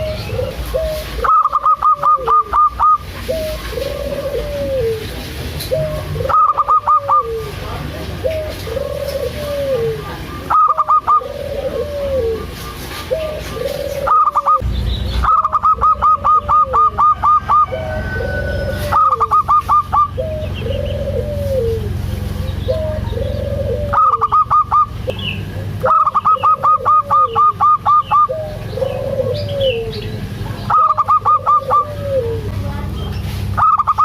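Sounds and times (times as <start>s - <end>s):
doves cooing: 0.0s - 32.6s, 33.4s - 34.0s
steady low rumble: 2.1s - 34.0s.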